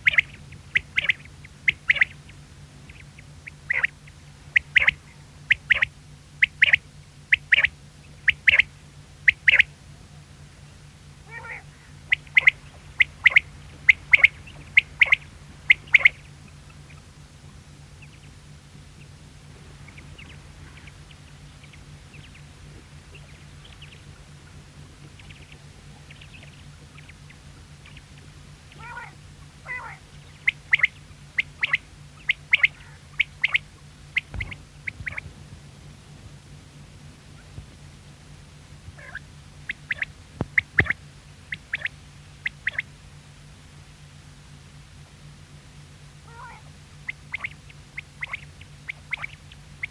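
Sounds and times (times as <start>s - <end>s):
quail calling: 0.0s - 9.7s, 11.2s - 17.1s, 19.8s - 35.3s, 38.9s - 43.0s, 46.2s - 49.9s
steady low hum: 0.0s - 49.9s.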